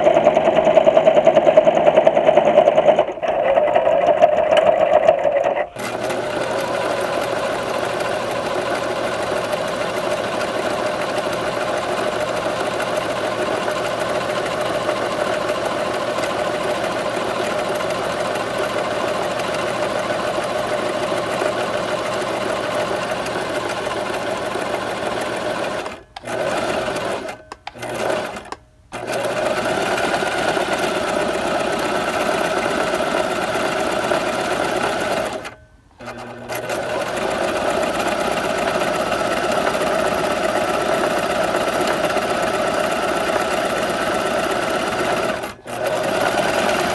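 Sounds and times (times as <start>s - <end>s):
sewing machine running: 0.0s - 46.9s.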